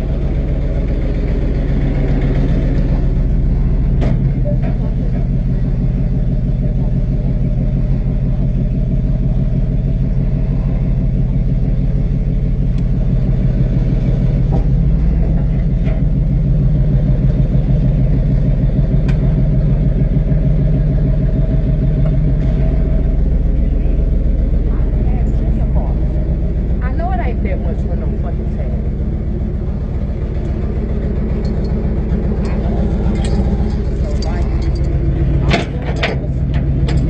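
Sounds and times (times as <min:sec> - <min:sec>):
tow truck engine running: 0:00.0 - 0:37.0.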